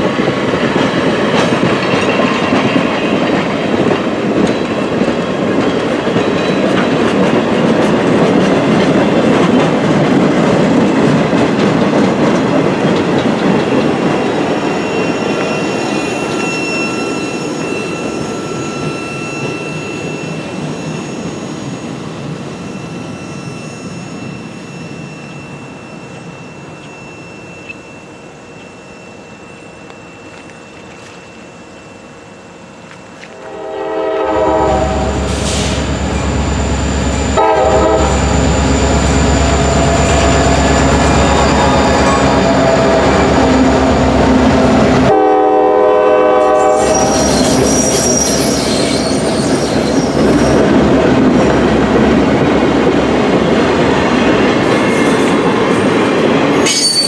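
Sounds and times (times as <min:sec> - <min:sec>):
train wheels rolling on rails: 0:00.0 - 0:57.0
faint thin wheel squeal: 0:14.7 - 0:31.4, 0:46.6 - 0:50.6.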